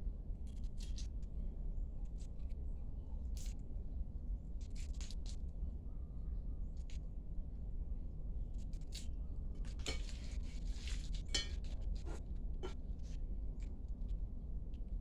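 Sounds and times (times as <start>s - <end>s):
dishes and utensils clinking: 11.4s - 11.6s.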